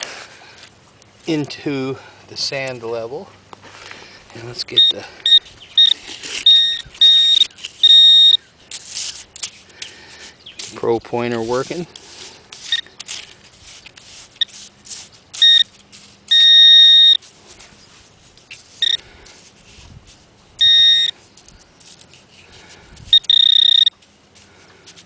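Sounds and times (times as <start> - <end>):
sand scraping: 3.7 - 25.0
metal detector buzzing alert: 4.7 - 8.5, 15.4 - 17.2, 18.8 - 19.0, 20.6 - 21.2, 23.1 - 24.0.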